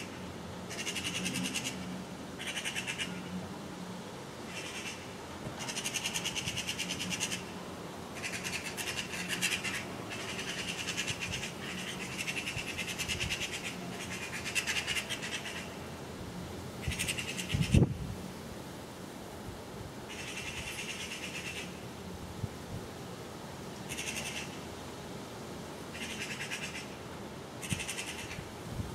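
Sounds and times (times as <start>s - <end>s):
magpies chattering: 0.7s - 1.8s, 2.4s - 3.3s, 8.2s - 15.7s, 16.8s - 17.8s, 20.1s - 21.7s, 23.9s - 24.6s, 27.6s - 28.4s.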